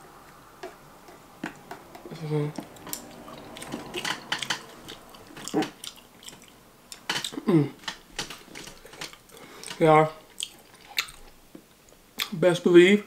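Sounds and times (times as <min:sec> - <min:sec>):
person chewing crunchy food: 0:00.3 - 0:12.4
person humming with mouth closed: 0:07.4 - 0:07.8.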